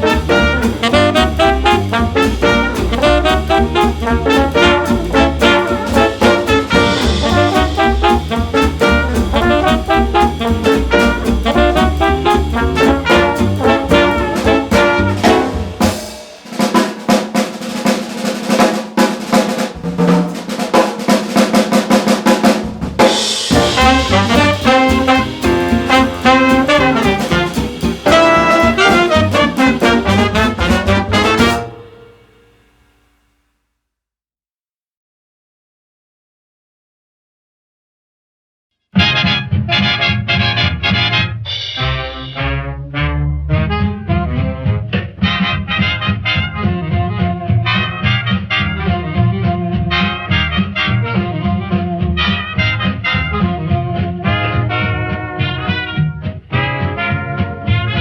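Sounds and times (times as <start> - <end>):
big band swing jazz: 0.0 - 32.9, 39.0 - 58.0
drum break on snare and cymbals: 0.0 - 33.4.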